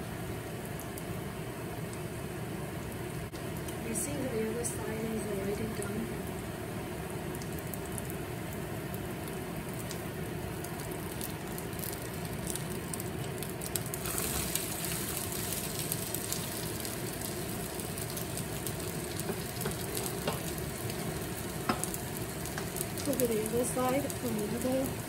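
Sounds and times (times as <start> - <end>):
potato pancake sizzling in oil: 0.0 - 25.0
oil crackling: 7.2 - 25.0.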